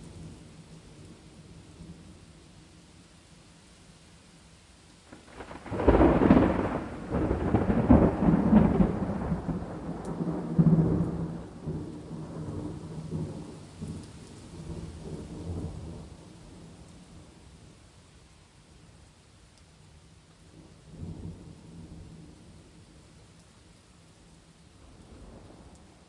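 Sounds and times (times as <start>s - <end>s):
rain hissing: 0.0s - 19.6s
thunder cracking and rumbling: 5.1s - 16.3s.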